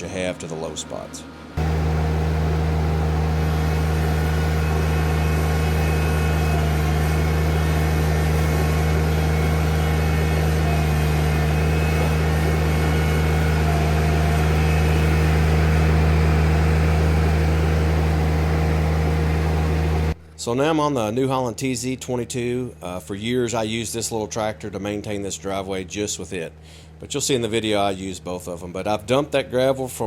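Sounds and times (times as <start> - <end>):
tractor diesel engine running: 0.0 - 20.3.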